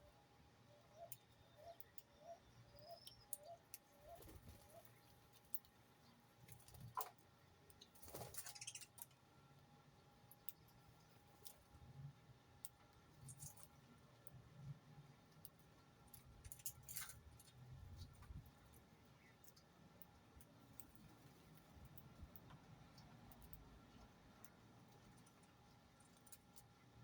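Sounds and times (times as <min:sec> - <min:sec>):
faint bird calls: 0:00.7 - 0:05.2.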